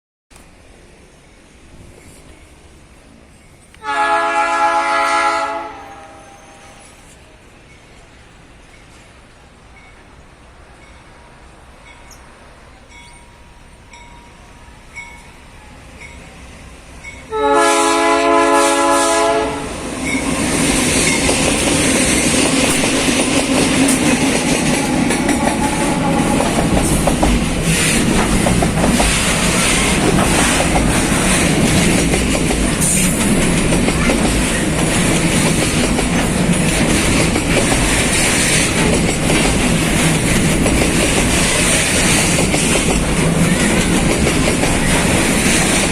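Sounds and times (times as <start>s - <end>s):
train rumbling past: 0.3s - 45.9s
locomotive horn: 3.8s - 6.9s, 17.3s - 19.8s, 25.3s - 26.5s
wheels clicking over rail joints: 20.0s - 45.9s.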